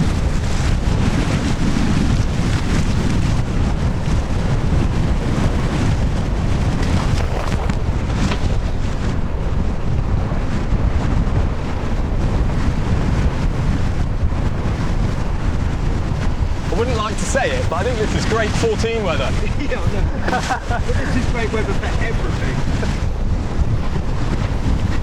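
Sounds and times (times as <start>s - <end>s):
wind buffeting microphone: 0.0s - 25.0s
water rushing past hulls: 2.2s - 9.9s, 16.2s - 23.1s.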